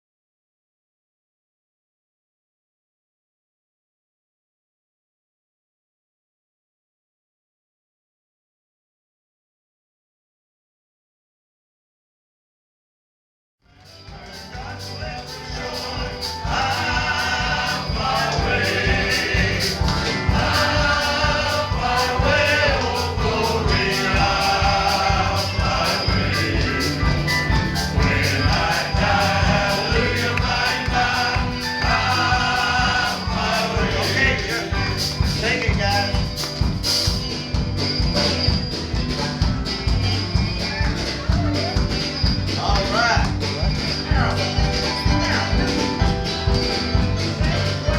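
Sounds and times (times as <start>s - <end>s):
gospel quartet singing in harmony: 13.7s - 47.9s
instrumental backing with beat: 13.7s - 47.9s.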